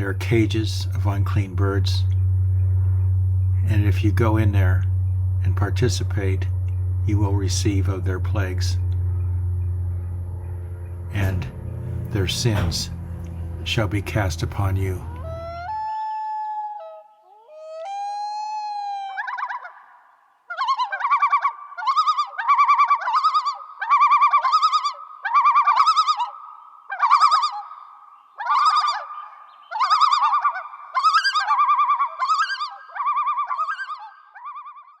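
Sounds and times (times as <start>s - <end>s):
bird whistling and trilling: 28.5s - 35.0s.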